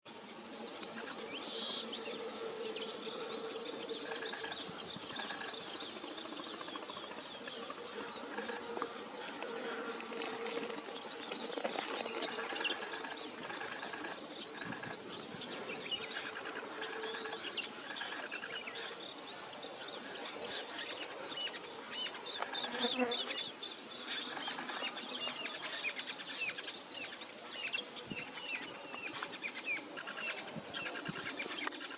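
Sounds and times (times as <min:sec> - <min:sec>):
birds chirping: 0:00.6 - 0:25.5.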